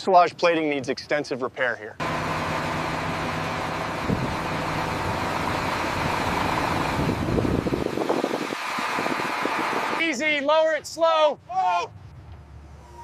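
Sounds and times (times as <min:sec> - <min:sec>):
deep machinery rumble: 0:01.9 - 0:13.0
machinery humming: 0:02.0 - 0:10.0.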